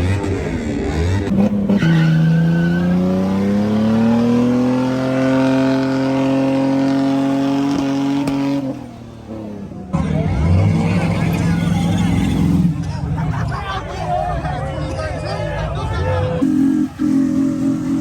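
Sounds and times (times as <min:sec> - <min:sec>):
car engine revving: 0:00.0 - 0:13.2, 0:16.0 - 0:18.0.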